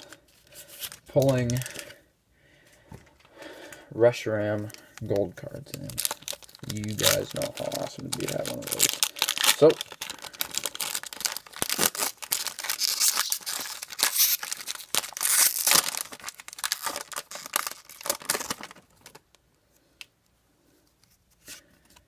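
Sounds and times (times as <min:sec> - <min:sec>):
foil wrapper tearing and crinkling: 0:00.0 - 0:01.9, 0:04.7 - 0:19.2.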